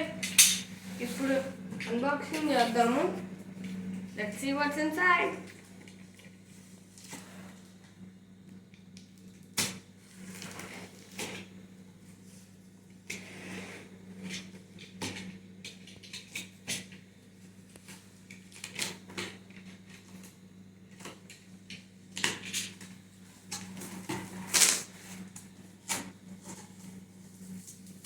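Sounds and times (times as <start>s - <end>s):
low steady hum: 0.0s - 13.3s.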